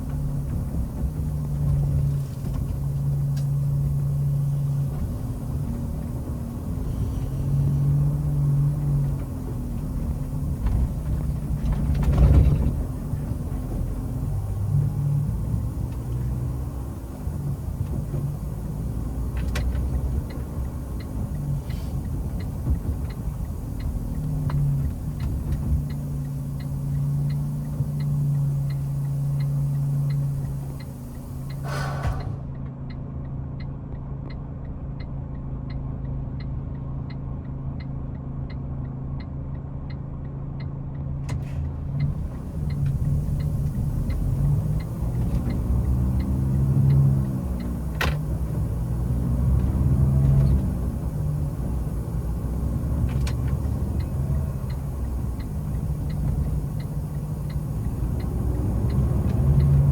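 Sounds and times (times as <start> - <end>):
truck engine running: 0.0 - 32.6, 41.3 - 59.9
light ticking: 7.8 - 31.7, 41.6 - 59.9
brief hiss: 30.2 - 32.5.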